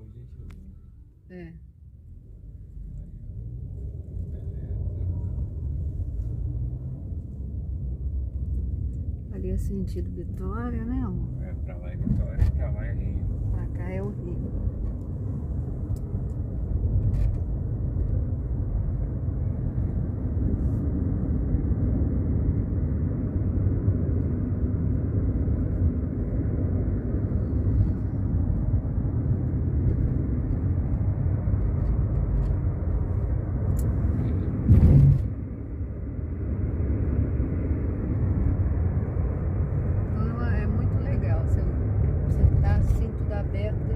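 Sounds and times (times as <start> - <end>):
car interior road rumble: 0.0 - 43.9
loud thump: 12.0 - 12.6, 34.6 - 35.4.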